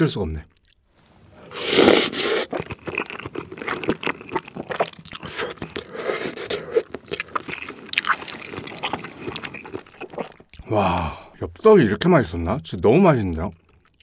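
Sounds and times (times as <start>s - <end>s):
chewing and wet mouth sounds: 0.4s - 10.7s, 13.5s - 14.0s.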